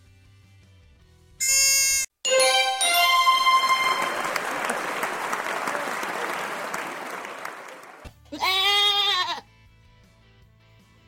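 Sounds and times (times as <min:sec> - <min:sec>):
bright ringing chime: 0:02.3 - 0:04.8
applause: 0:02.3 - 0:08.1.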